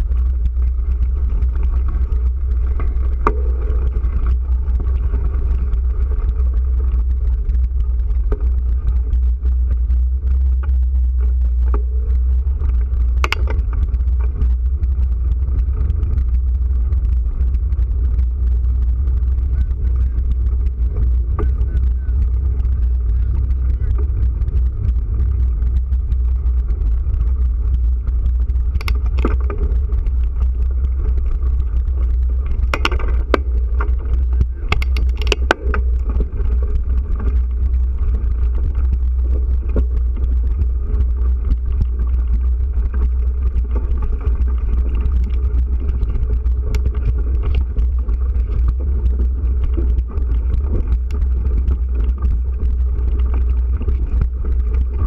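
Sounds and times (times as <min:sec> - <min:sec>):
wind buffeting microphone: 0:00.0 - 0:55.0
sharp clicks or rattles: 0:11.6 - 0:14.6, 0:27.4 - 0:55.0.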